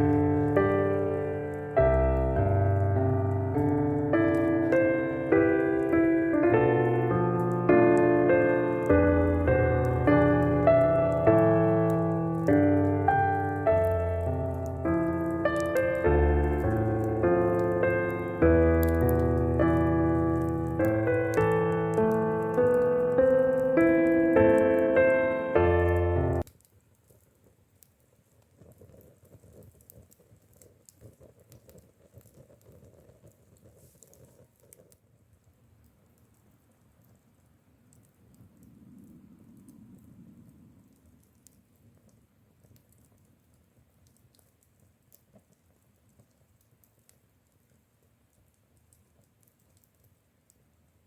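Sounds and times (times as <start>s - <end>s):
faint small clicks and patter: 0.0s - 51.0s
small ticks: 26.4s - 50.7s.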